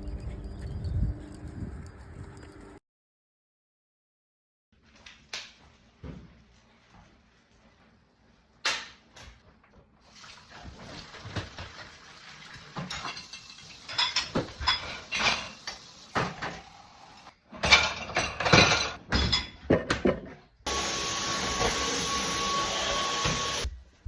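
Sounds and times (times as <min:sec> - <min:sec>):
dishes and cutlery clinking: 0:12.7 - 0:16.6, 0:17.6 - 0:20.4.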